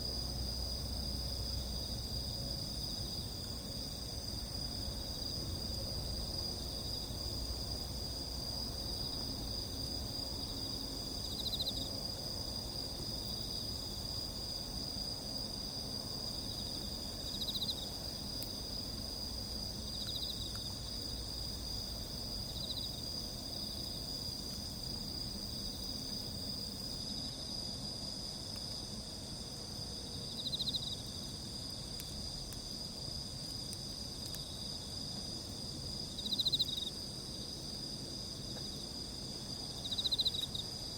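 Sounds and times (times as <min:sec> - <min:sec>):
crickets and insects trilling: 0:00.0 - 0:40.9
pulsed insect chirp: 0:12.6 - 0:27.1, 0:35.8 - 0:37.2, 0:39.6 - 0:40.7.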